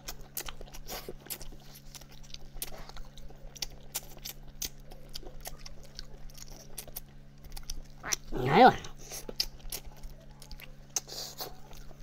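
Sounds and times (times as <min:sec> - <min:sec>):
person chewing: 0:00.0 - 0:12.0
steady low hum: 0:04.8 - 0:10.3.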